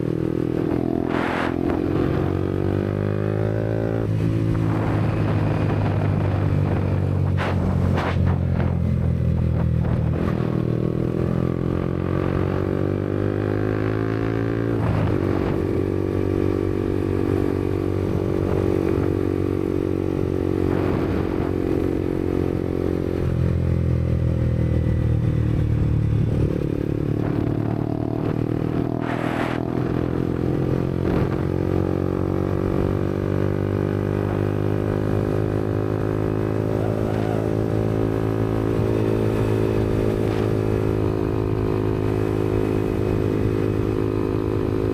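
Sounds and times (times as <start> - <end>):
motorcycle engine cruising: 0.0 - 44.9.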